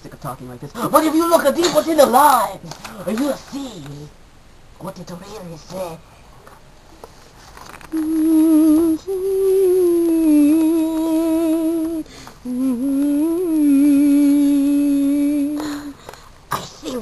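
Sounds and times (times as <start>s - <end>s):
person humming: 7.9s - 16.0s.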